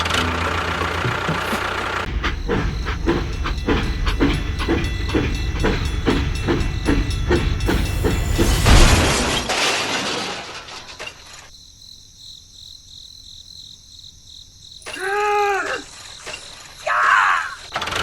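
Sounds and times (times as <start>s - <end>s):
rhythmic chugging: 0.0s - 9.2s
loud shattering crash: 8.2s - 11.5s.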